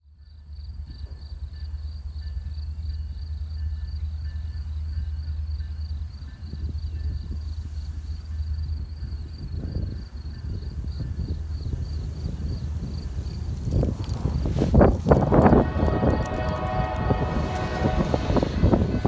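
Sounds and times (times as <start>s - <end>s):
insects chirping: 10.1s - 19.0s
low rumble: 13.4s - 19.0s.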